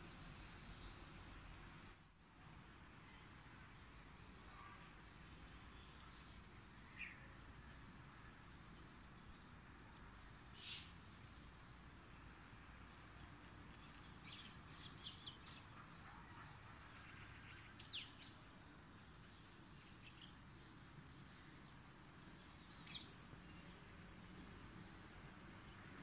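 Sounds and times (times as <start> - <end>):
faint steady hiss: 0.0 - 26.0
songbirds chirping: 0.1 - 26.0.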